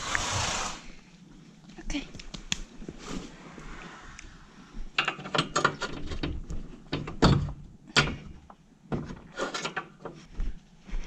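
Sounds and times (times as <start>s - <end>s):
tools knocking and scraping: 4.9s - 10.3s.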